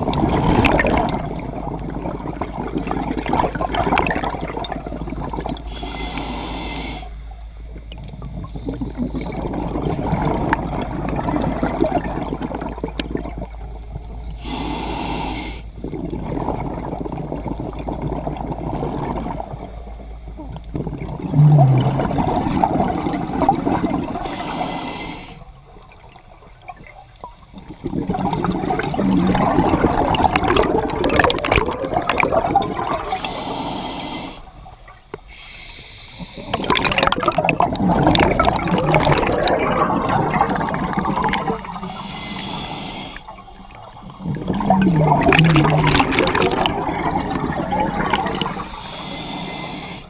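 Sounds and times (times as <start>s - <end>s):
bubbling exhale underwater: 0.0s - 7.1s, 7.8s - 35.4s, 36.2s - 50.0s
regulator hissing inhales: 5.7s - 7.2s, 14.4s - 15.7s, 23.1s - 25.6s, 33.1s - 34.6s, 35.2s - 36.7s, 41.8s - 43.4s, 48.3s - 50.0s.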